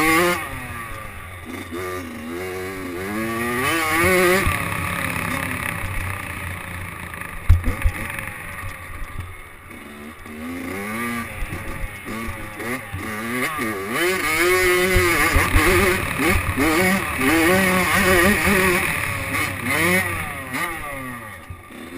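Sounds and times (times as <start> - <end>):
dirt bike engine revving: 0.0 - 21.9
sharp thump: 7.4 - 8.1.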